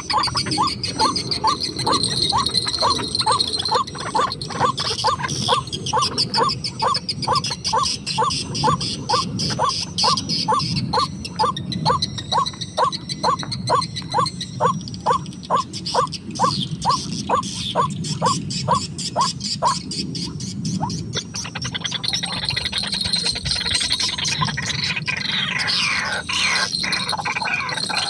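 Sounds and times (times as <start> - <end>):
faint higher chirping: 0.0 - 21.2.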